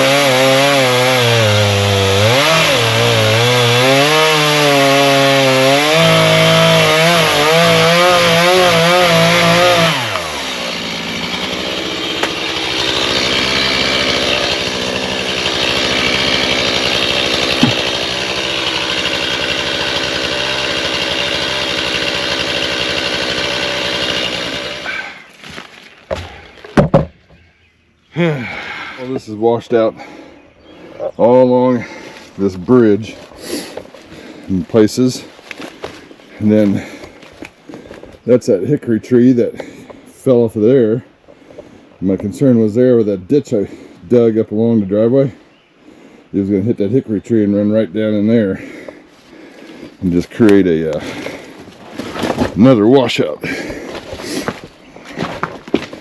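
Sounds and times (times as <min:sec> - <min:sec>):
chainsaw cutting wood: 0:00.0 - 0:26.9, 0:48.7 - 0:56.0
sharp knocks: 0:17.5 - 0:18.2.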